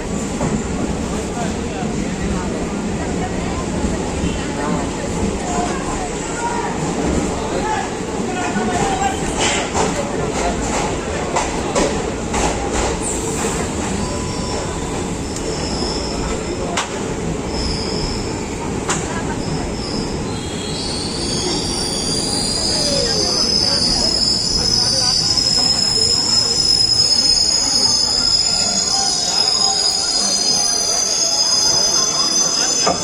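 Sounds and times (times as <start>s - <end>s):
train running on rails: 0.0s - 33.0s
train wheels squealing: 13.0s - 16.8s, 17.4s - 18.6s, 19.2s - 33.0s.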